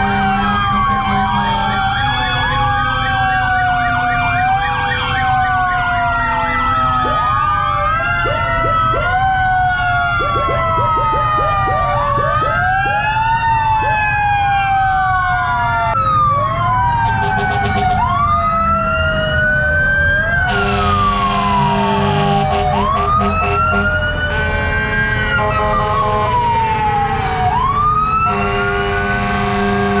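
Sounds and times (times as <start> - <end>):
fire truck sirens wailing: 0.0 - 30.0
air horn blasts: 20.5 - 26.4, 28.3 - 30.0.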